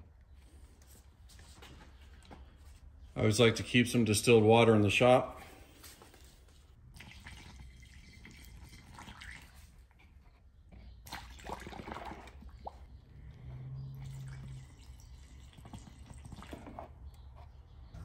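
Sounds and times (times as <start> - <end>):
water trickling through a funnel: 6.9 - 10.2, 11.0 - 17.0.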